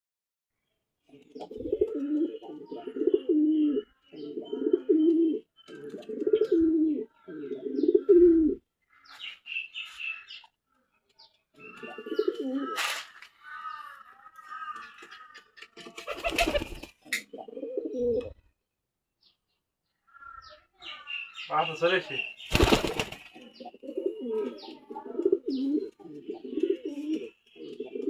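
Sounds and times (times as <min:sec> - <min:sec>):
small birds chirping: 0:00.6 - 0:28.0
pigeons cooing: 0:01.1 - 0:08.6, 0:11.6 - 0:18.5, 0:22.5 - 0:28.0.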